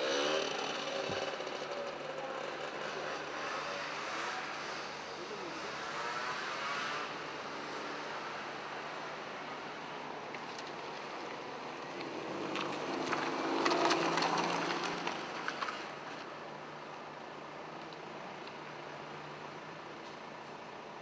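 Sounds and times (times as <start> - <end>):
vehicle passing by: 12.0 - 15.8.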